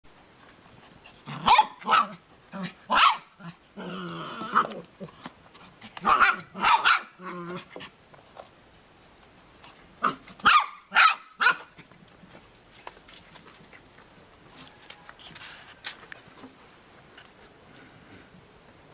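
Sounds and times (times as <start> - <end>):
dog barking: 1.4 - 2.2, 2.9 - 3.3, 6.0 - 7.1, 10.0 - 11.7.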